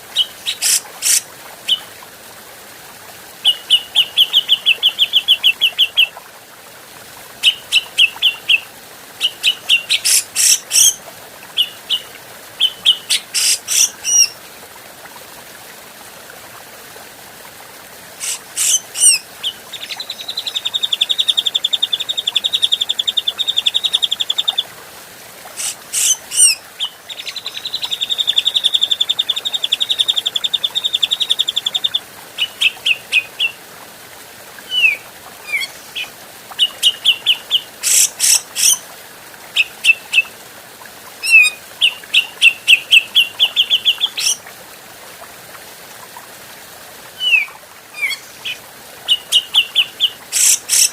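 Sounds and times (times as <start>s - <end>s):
bird chattering and trilling: 18.2s - 19.2s.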